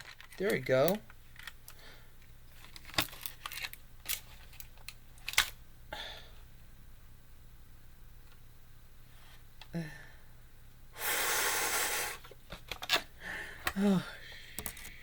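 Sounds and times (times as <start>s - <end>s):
packaging clicks and crinkles: 0.0s - 1.8s, 2.5s - 5.6s.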